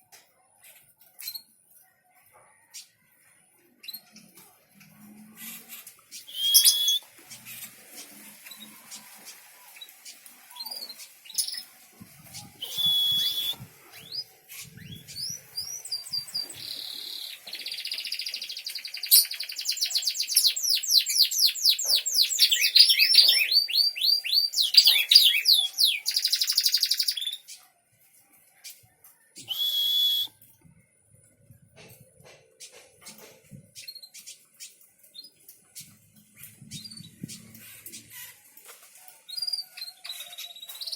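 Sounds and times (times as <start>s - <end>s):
songbird singing: 6.1s - 7.6s, 8.5s - 27.7s, 28.6s - 30.4s.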